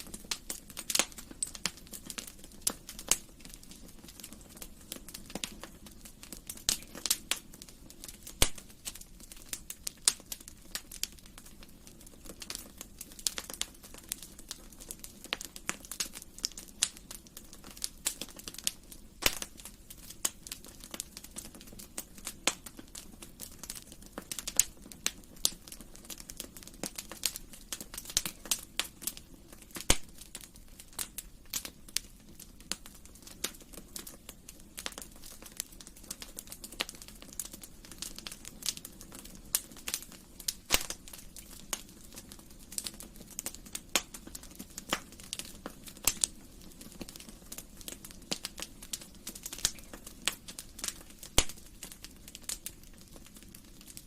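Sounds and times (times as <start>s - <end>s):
fireplace fire crackling: 0.0s - 54.0s.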